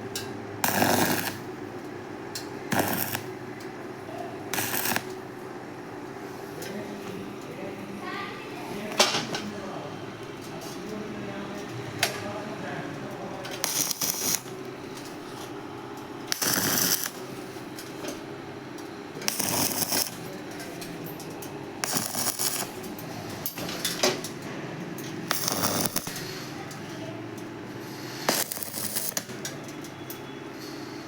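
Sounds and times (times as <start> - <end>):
low machine hum: 0.0 - 31.0
short hissing bursts: 16.3 - 17.1.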